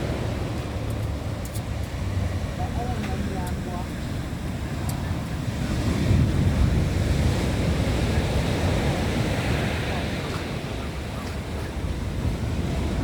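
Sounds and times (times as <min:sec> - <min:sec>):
sea waves breaking on beach: 0:00.0 - 0:13.0
wind rumbling on microphone: 0:00.0 - 0:13.0.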